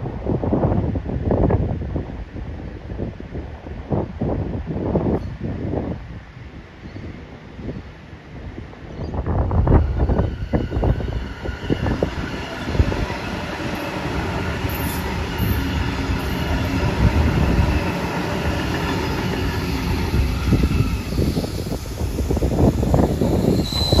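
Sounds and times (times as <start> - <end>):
train rumble: 0.0 - 24.0
wheels clacking over rail joints: 11.4 - 21.5.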